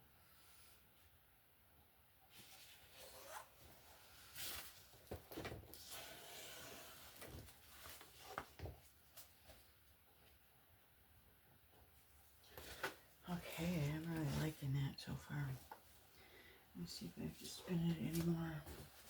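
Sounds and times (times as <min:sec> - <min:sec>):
rustling and rubbing: 0:02.3 - 0:09.7.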